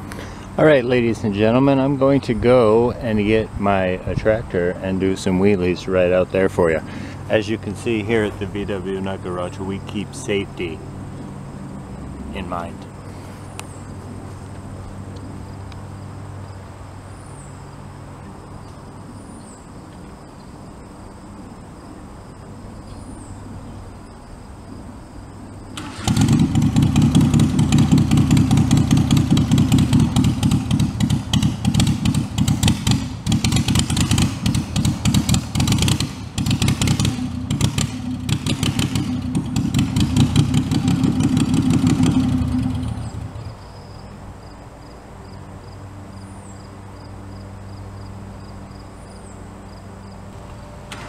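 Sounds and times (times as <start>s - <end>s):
tractor engine running: 25.7s - 43.7s.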